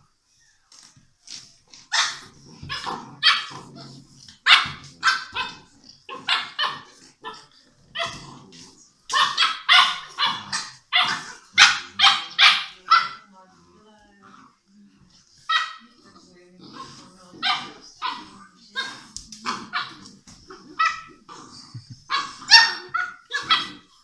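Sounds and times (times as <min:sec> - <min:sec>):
puppies yapping: 0:01.7 - 0:03.6, 0:09.1 - 0:13.2, 0:22.1 - 0:24.0.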